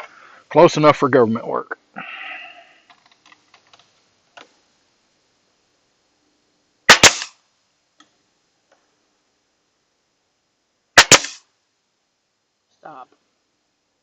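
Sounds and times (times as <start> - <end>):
nail gun firing: 6.9 - 7.4, 11.0 - 11.4.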